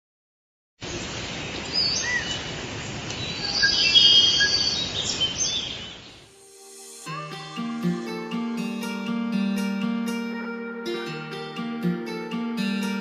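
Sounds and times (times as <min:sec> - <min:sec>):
outdoor background noise: 0:00.8 - 0:07.0
birds chirping: 0:01.0 - 0:06.3.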